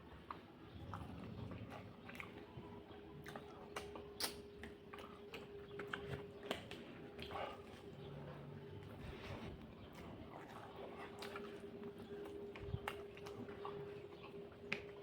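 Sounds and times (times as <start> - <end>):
person chewing food: 0.1 - 15.0
mouth clicks and smacks: 3.2 - 7.3.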